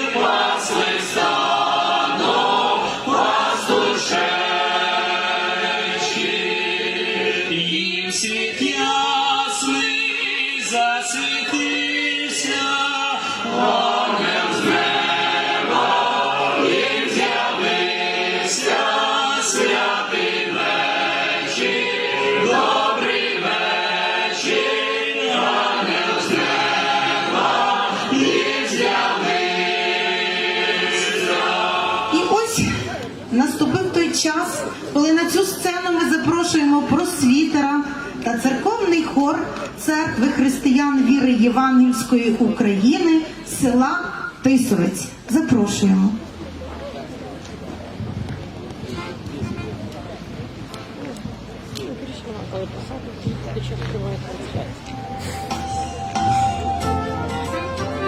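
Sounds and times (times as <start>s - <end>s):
choir singing a carol: 0.0s - 44.4s.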